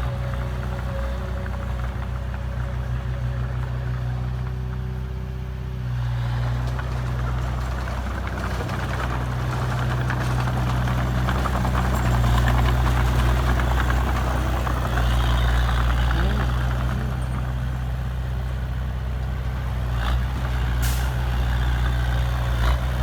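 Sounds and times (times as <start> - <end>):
heavy diesel engine running: 0.0 - 23.0
rough mechanical noise: 19.8 - 23.0.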